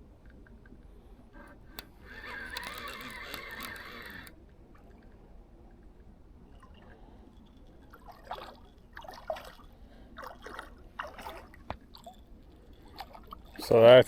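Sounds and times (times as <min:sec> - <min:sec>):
water splashing: 0:06.5 - 0:14.0.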